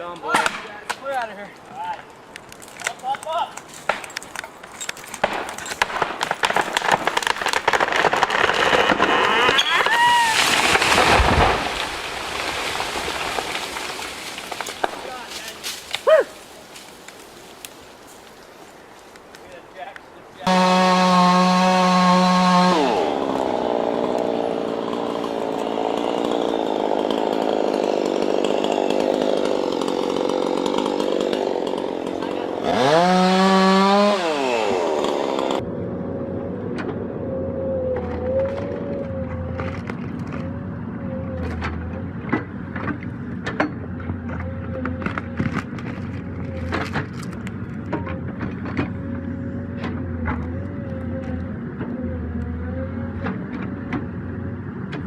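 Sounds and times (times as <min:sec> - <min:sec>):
sharp cracks: 0:02.3 - 0:17.8
chainsaw cutting wood: 0:02.6 - 0:17.8, 0:20.4 - 0:35.6, 0:36.8 - 0:55.0.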